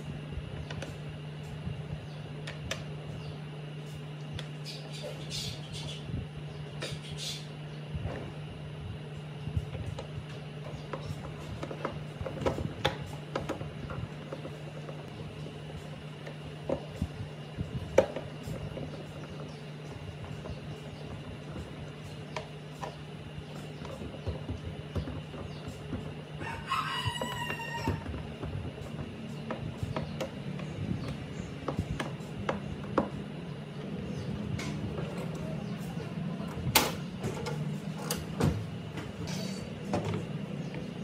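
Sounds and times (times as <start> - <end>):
steady low hum: 0.0 - 41.0
rooster crowing: 26.4 - 28.3.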